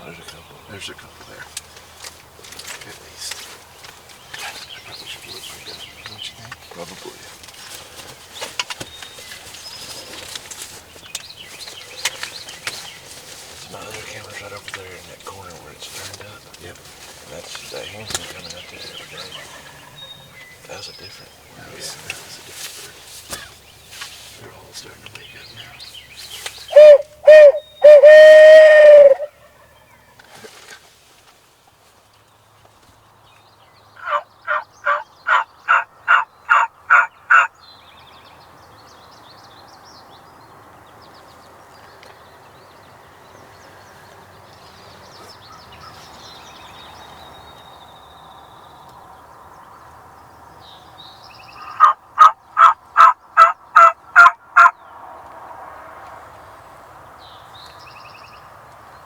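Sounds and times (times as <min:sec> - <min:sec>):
turkey call dropping in pitch: 0:26.8 - 0:29.3
turkey yelping: 0:26.8 - 0:29.4, 0:34.0 - 0:37.5, 0:51.6 - 0:54.8.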